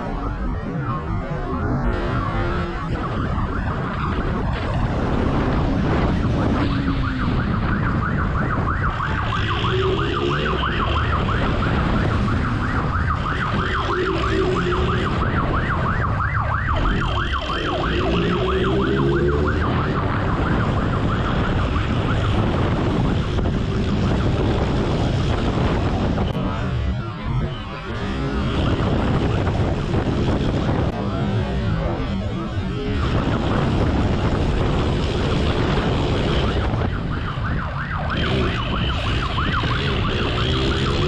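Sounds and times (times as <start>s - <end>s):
warbling siren: 0.0s - 41.0s
motorcycle engine revving: 38.0s - 41.0s.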